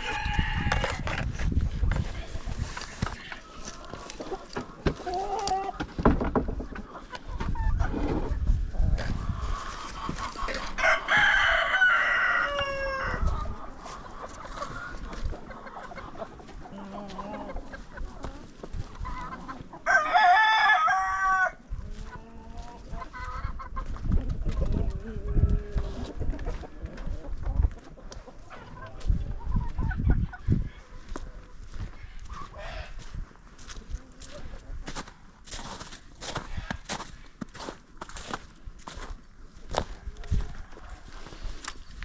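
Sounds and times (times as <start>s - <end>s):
rooster crowing: 0.0s - 1.1s, 10.8s - 13.3s, 19.8s - 21.6s
hens clucking: 0.0s - 42.0s.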